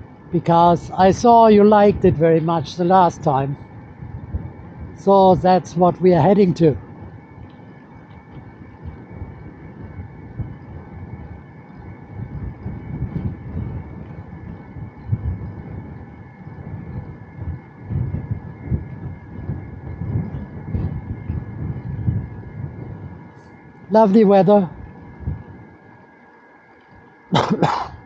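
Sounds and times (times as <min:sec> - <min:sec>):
wind buffeting microphone: 0:00.0 - 0:26.2
faint high whine: 0:00.0 - 0:28.0
bicycle rolling noise: 0:03.6 - 0:05.1, 0:06.8 - 0:27.1.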